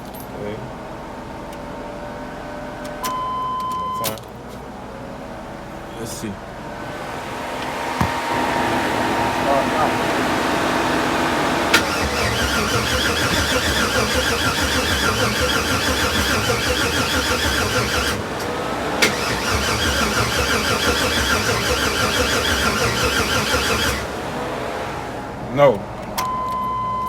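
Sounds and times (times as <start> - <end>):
starter motor cranking: 6.9 - 25.0
starter click: 11.7 - 19.8.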